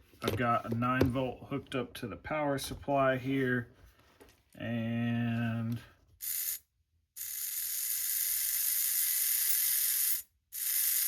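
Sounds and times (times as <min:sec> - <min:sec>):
small electric motor whirring: 0:06.2 - 0:06.6, 0:07.2 - 0:11.0.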